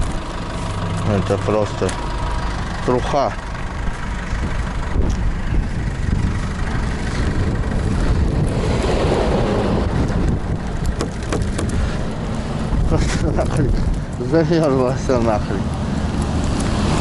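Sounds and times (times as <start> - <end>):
van engine and road noise: 0.0 - 17.0
wind noise: 3.8 - 14.2.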